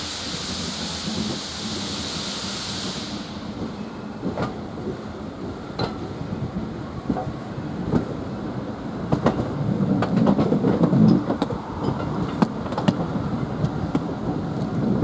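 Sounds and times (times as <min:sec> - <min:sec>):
train running gear rumble: 0:00.0 - 0:15.0
wheels clicking over rail joints: 0:09.0 - 0:14.8.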